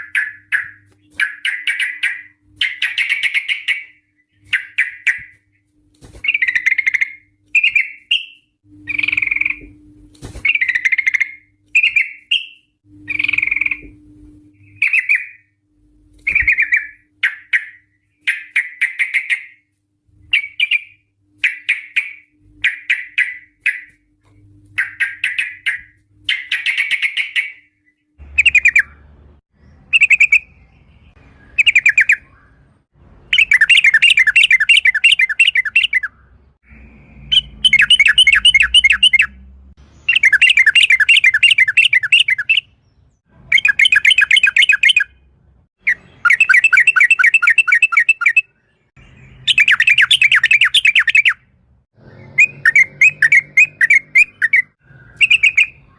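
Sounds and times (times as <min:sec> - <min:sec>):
bulbul singing trills: 0:06.2 - 0:09.8, 0:10.4 - 0:15.6, 0:16.2 - 0:19.6, 0:24.8 - 0:32.7, 0:33.3 - 0:55.9.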